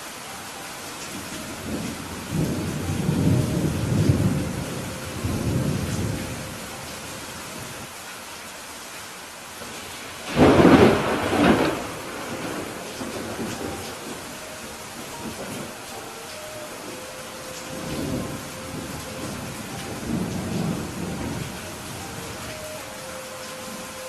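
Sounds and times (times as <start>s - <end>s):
steady rain: 0.0s - 24.0s
thunder rumbling: 1.3s - 7.8s, 9.7s - 23.0s
sharp thunderclap: 10.3s - 14.1s.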